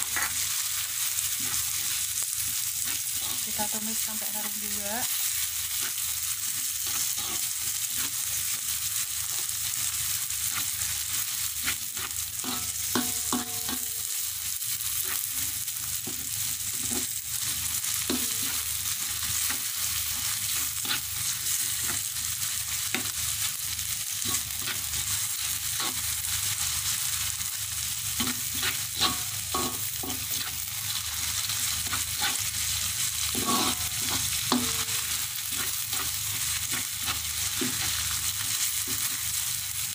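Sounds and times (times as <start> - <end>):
spatula scraping and tapping pan: 0.0 - 0.5, 5.7 - 8.6, 10.4 - 11.0, 11.6 - 14.0, 15.0 - 22.1, 22.8 - 23.2, 24.2 - 26.5, 28.2 - 31.0, 31.6 - 32.6, 33.2 - 39.3
aromatics sizzling in a wok: 0.0 - 39.9.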